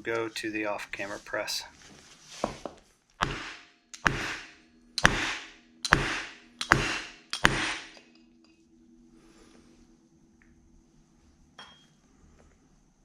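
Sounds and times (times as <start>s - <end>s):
sharp metal knocks: 3.2s - 8.0s.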